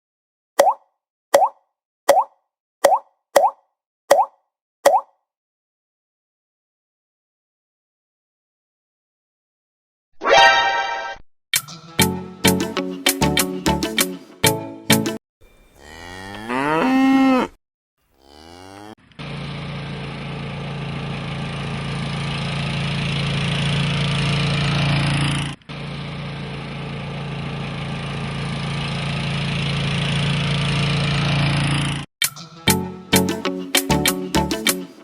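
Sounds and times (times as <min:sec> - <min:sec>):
cow mooing: 0:15.7 - 0:19.0
tractor engine running: 0:19.0 - 0:32.0.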